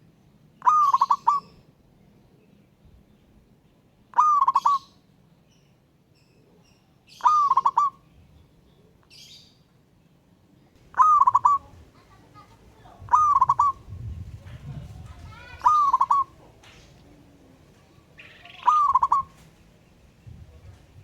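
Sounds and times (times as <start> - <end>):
dove cooing: 0.6 - 1.6, 4.2 - 4.9, 7.1 - 8.0, 10.8 - 21.0.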